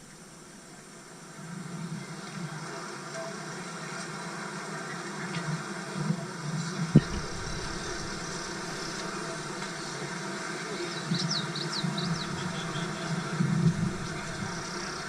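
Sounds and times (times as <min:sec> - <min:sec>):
vehicle engine hum: 0:07.0 - 0:10.2, 0:11.9 - 0:15.0.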